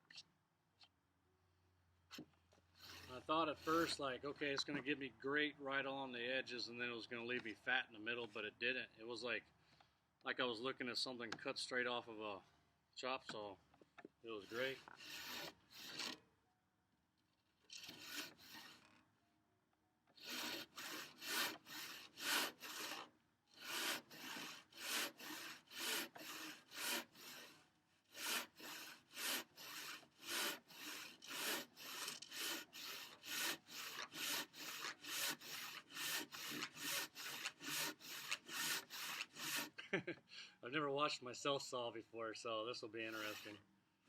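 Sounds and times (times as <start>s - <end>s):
handsaw cutting timber: 2.1s - 4.2s, 14.3s - 16.2s, 17.7s - 19.0s, 20.2s - 39.8s, 43.0s - 43.6s.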